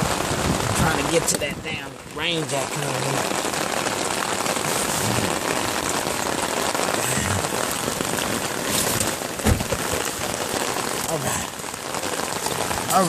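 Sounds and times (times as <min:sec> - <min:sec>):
rain drumming on umbrella: 0:00.0 - 0:13.0
rain on car: 0:00.0 - 0:13.0
dull thump: 0:08.9 - 0:10.0.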